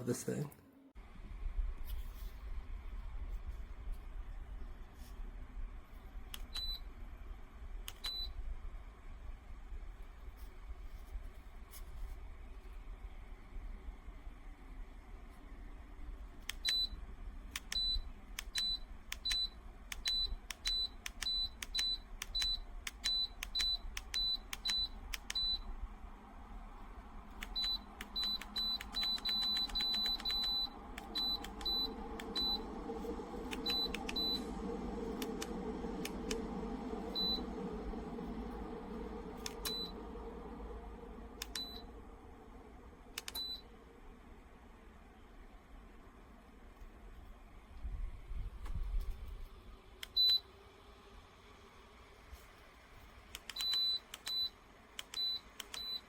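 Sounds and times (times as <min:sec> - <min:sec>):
heater fan air rushing: 0:01.0 - 0:55.7
heater short high beeps: 0:27.5 - 0:37.7, 0:39.4 - 0:40.1.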